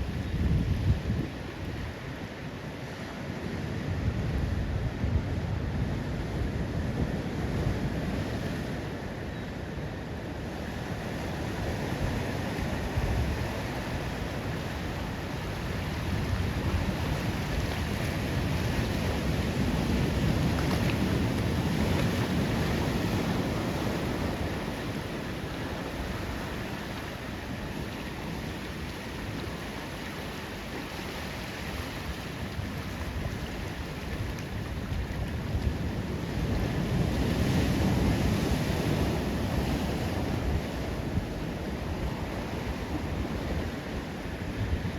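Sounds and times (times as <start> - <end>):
wind buffeting microphone: 0.0 - 2.1
ocean surf on rocky beach: 0.0 - 44.9.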